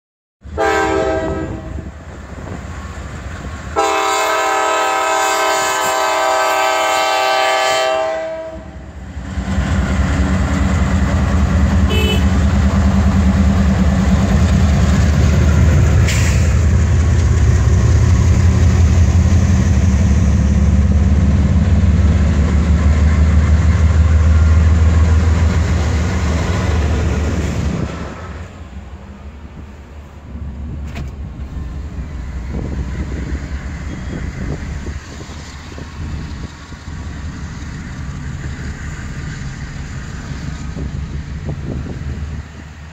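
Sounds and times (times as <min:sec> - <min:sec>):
diesel locomotive rumble: 0:00.4 - 0:42.9
train air horn: 0:00.5 - 0:02.0, 0:03.8 - 0:09.0, 0:11.9 - 0:12.4.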